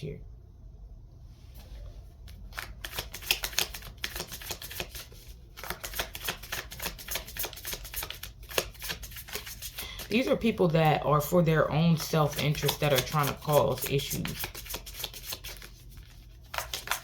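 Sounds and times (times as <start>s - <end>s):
cards being shuffled: 2.2s - 10.3s, 12.2s - 17.0s.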